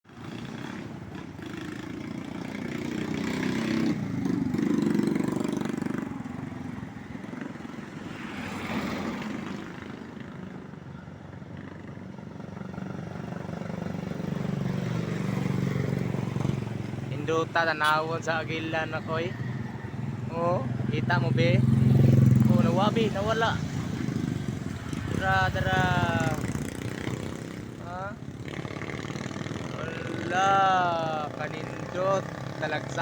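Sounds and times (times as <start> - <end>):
vehicle engine humming: 12.4 - 33.0.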